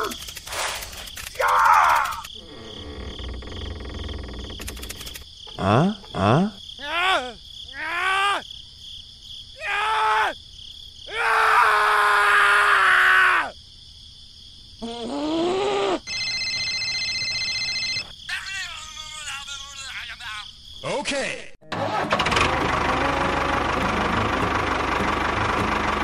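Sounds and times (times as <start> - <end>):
electronic phone ringtone: 16.1 - 18.1.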